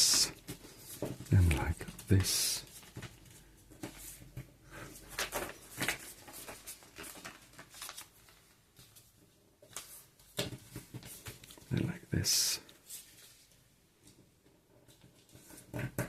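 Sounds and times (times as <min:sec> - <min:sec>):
paper being folded and creased: 0:04.9 - 0:11.6.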